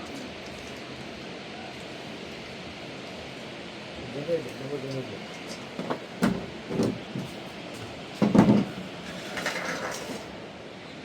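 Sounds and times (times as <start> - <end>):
dull knocks and thumps: 5.7 - 7.4, 8.2 - 8.8.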